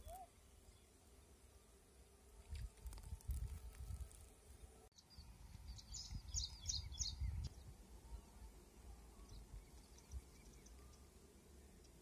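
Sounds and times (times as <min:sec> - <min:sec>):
small bird chirping: 0:05.0 - 0:07.7.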